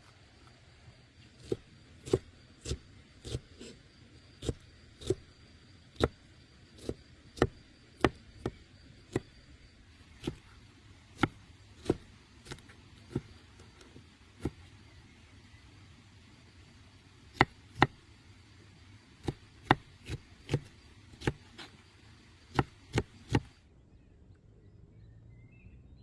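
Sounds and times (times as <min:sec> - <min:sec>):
knife chopping on wooden board: 0:01.4 - 0:03.8, 0:04.4 - 0:05.2, 0:06.8 - 0:09.4, 0:10.1 - 0:14.7, 0:17.3 - 0:18.0, 0:19.2 - 0:21.8, 0:22.5 - 0:23.6.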